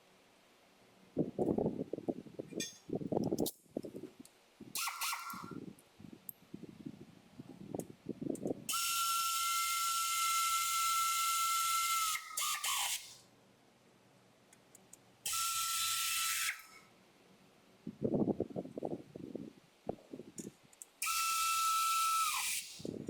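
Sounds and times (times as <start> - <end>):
air tool hiss and whine: 4.8 - 5.6, 8.7 - 13.2, 15.3 - 16.8, 21.0 - 23.0.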